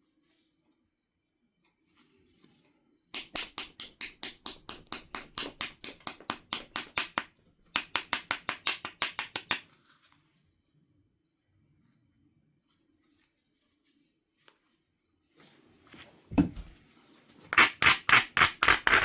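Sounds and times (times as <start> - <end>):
stone scraping flint edge: 3.2 - 9.6, 17.5 - 19.0.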